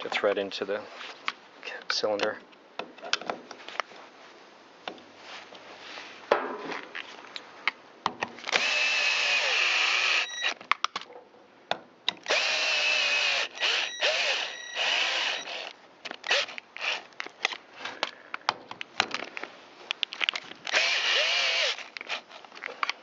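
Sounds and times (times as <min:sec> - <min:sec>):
power driver running screws: 0:08.5 - 0:10.6, 0:12.2 - 0:17.1, 0:20.7 - 0:22.4.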